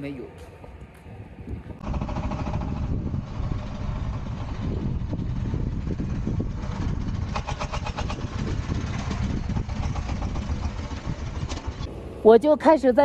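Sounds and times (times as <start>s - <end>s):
wind buffeting microphone: 0.6s - 12.6s
quick rattle: 1.8s - 11.9s.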